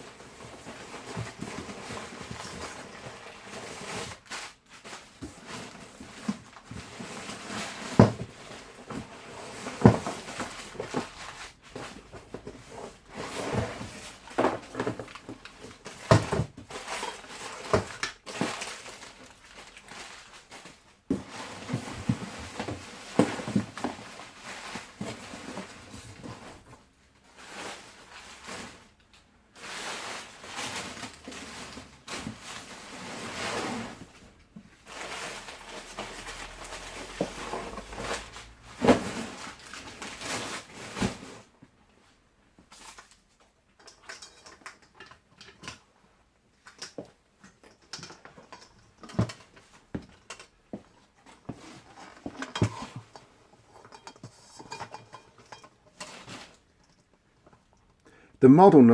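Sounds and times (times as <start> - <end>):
packaging rustling: 34.8 - 41.2
knocks and clunks of handling: 46.6 - 58.0.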